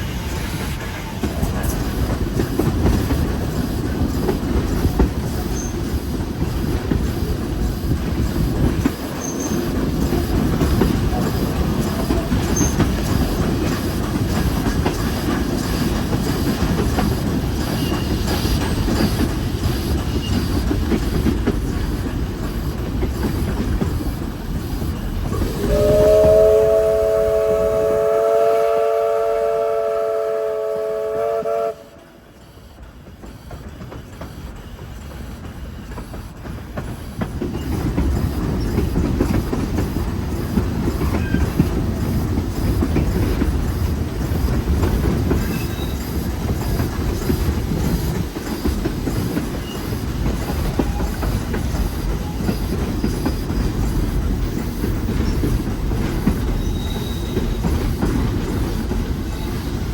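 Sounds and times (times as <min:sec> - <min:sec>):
train rumble and rail clatter: 0:00.0 - 0:59.9
train chord whistle: 0:25.4 - 0:32.2.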